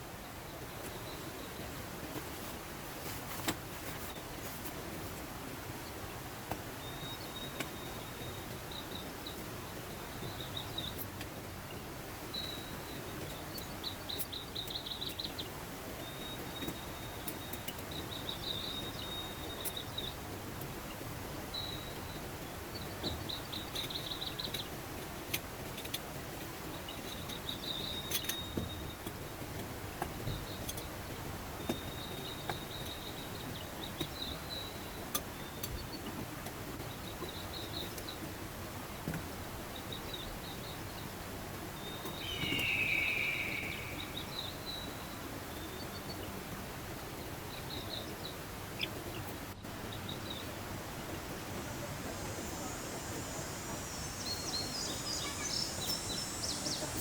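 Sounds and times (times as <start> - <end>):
high chirping trills: 41.8 - 45.2, 51.8 - 57.0
falling bird call: 42.1 - 44.3.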